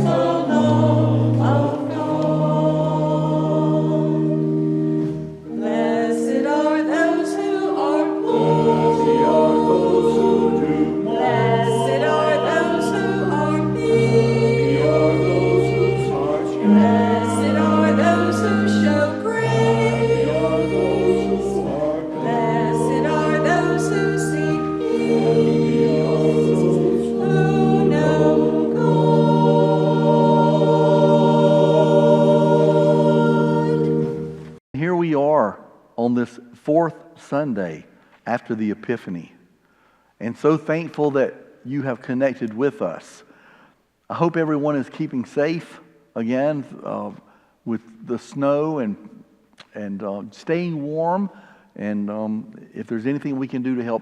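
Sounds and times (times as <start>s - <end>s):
choir singing sacred music: 0.0s - 34.6s.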